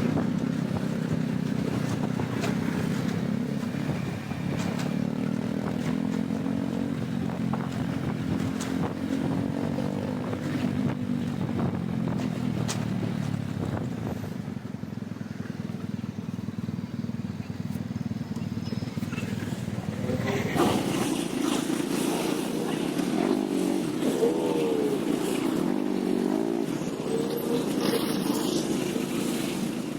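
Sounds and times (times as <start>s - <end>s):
wind buffeting microphone: 0.0s - 14.8s
scooter engine humming: 0.0s - 29.9s.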